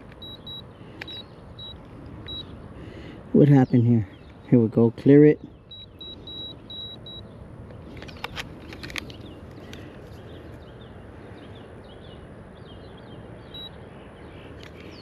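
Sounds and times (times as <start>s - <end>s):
small birds chirping: 0.0s - 15.0s
digital scale beeping: 0.2s - 2.5s, 5.7s - 7.2s.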